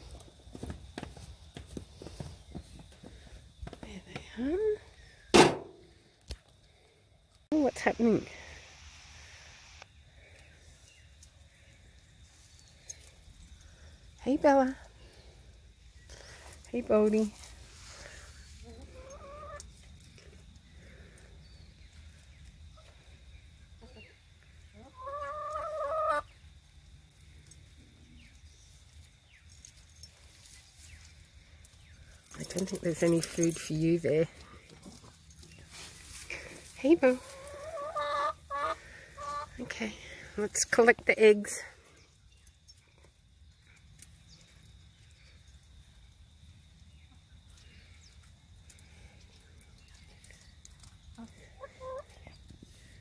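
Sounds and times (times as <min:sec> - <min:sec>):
chicken calling: 0:18.6 - 0:19.7, 0:23.8 - 0:26.4, 0:37.1 - 0:39.6, 0:51.2 - 0:52.1.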